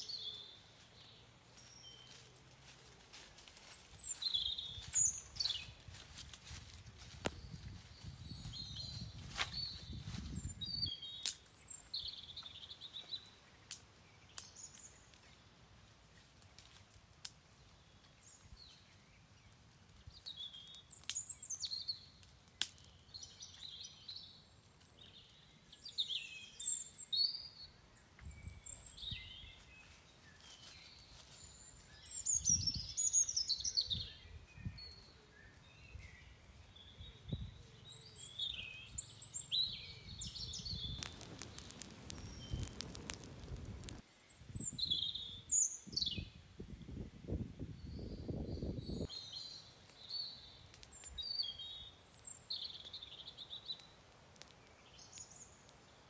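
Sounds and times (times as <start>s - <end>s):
birds chirping: 3.5s - 15.4s, 17.7s - 46.4s
sharp clicks: 41.0s - 44.0s.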